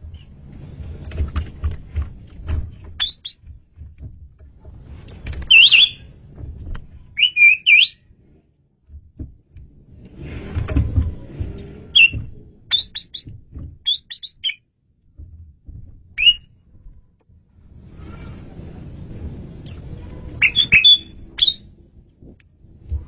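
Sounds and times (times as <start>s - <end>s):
bird whistling sharp notes: 5.5s - 6.0s, 7.2s - 8.0s, 12.0s - 13.2s, 13.9s - 14.6s, 16.2s - 16.4s, 20.4s - 21.6s.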